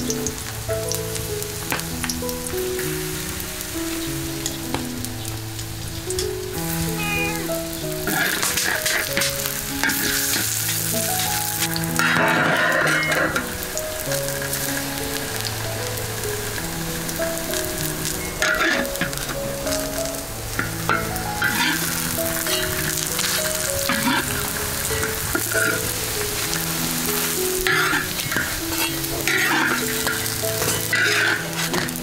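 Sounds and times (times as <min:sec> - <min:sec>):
patties sizzling in oil: 0:00.0 - 0:32.0
soft background music: 0:00.0 - 0:32.0
metal spatula scraping a wok: 0:08.1 - 0:13.4, 0:27.2 - 0:31.9.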